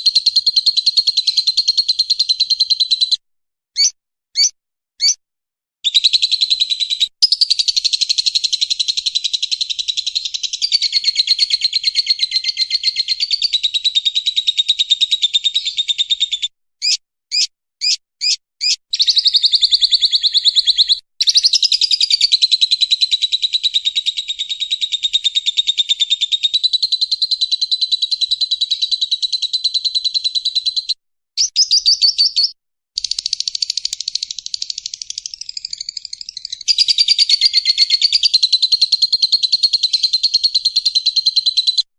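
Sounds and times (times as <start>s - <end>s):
bird chirps: 0.0s - 3.2s, 3.8s - 5.2s, 5.8s - 41.9s
lovebird chattering: 15.6s - 22.3s, 31.4s - 38.9s.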